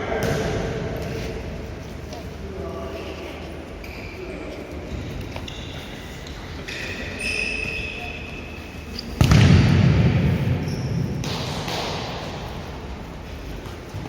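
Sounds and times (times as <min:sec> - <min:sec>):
shoes squeaking on court: 0:03.2 - 0:09.2, 0:10.4 - 0:12.0
loud thud: 0:09.2 - 0:12.5
low rumbling noise: 0:09.2 - 0:14.0.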